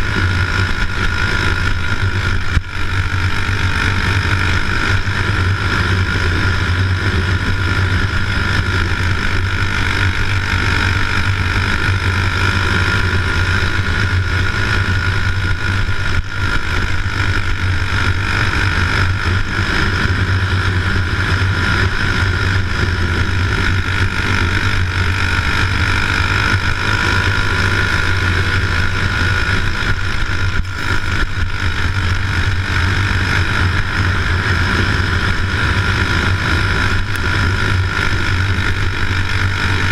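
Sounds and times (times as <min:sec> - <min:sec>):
engine drone: 0:00.0 - 0:39.9.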